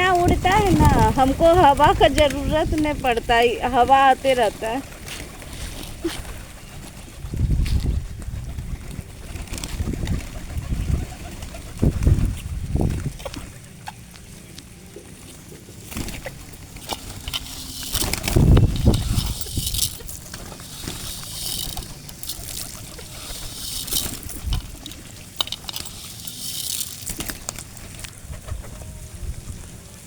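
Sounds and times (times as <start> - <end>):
pigeons flapping wings: 0.0 - 14.0, 15.1 - 29.0.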